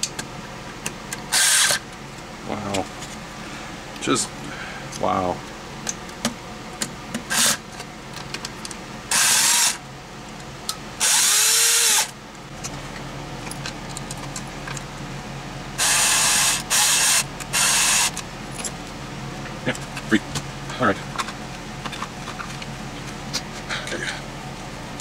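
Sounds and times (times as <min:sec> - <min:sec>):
power drill bursts: 0:01.3 - 0:01.8, 0:09.1 - 0:09.8, 0:11.0 - 0:12.1.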